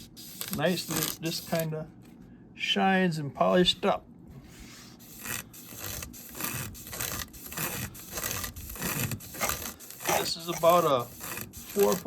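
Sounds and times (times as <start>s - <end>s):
sandpaper strap rubbing metal: 0.0s - 1.7s, 4.6s - 12.0s.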